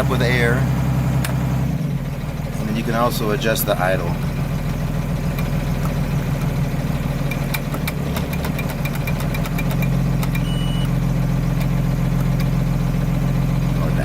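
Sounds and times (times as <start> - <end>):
bus diesel engine idling: 0.0 - 14.0
short high beep: 10.4 - 10.9.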